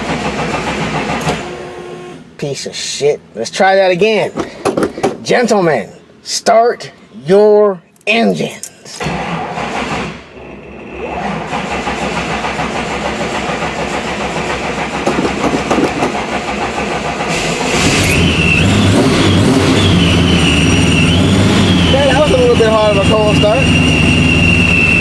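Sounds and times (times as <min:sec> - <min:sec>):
starter cranking engine: 0:09.0 - 0:10.2, 0:10.9 - 0:25.0
supercharger whine: 0:09.2 - 0:25.0
car engine running: 0:09.5 - 0:25.0.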